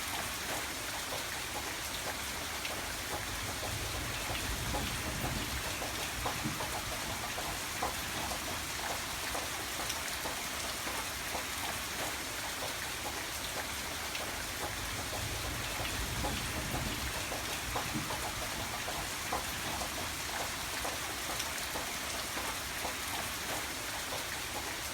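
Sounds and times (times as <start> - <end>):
gentle rainfall: 0.0 - 24.9.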